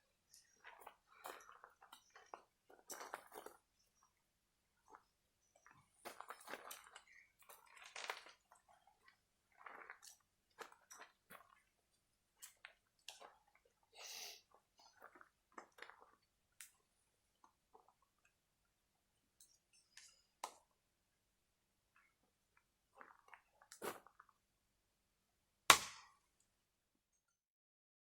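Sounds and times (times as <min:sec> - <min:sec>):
faint crackles and clicks: 0:14.5 - 0:18.7.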